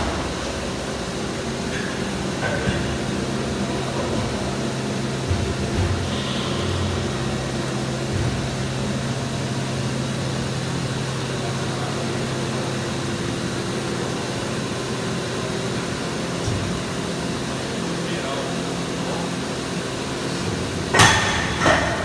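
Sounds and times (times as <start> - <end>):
machinery humming with rushing air: 0.0 - 22.0.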